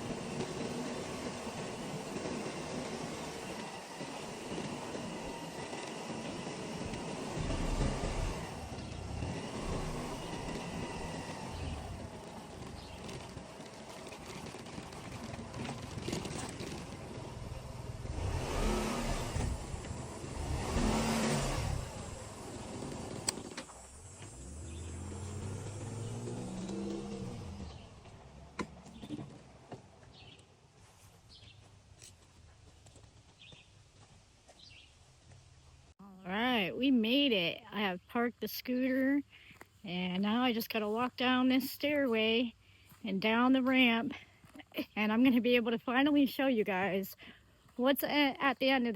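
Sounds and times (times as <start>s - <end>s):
scooter engine running: 0.0s - 33.7s
road and wind noise: 0.0s - 35.9s.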